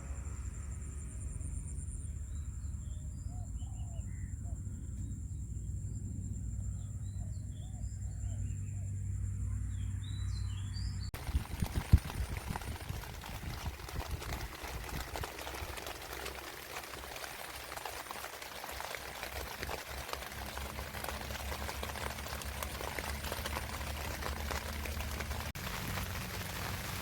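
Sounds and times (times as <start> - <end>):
low steady rumble: 0.0 - 27.0
dense patter of water: 11.2 - 27.0.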